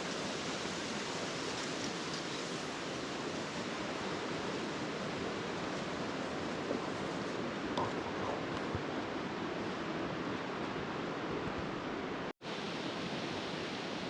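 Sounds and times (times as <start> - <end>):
strong wind blowing: 3.4 - 14.0.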